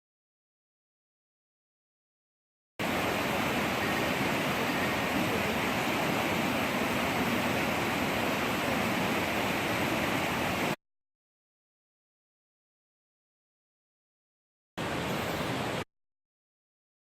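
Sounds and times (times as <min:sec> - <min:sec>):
steady rushing noise: 0:14.8 - 0:15.8.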